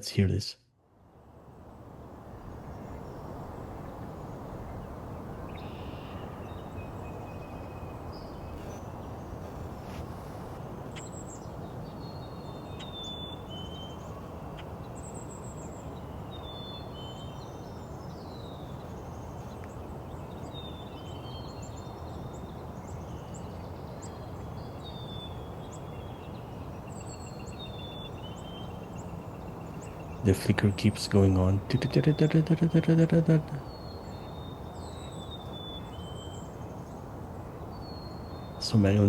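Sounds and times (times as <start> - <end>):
songbirds singing: 1.4 - 39.0.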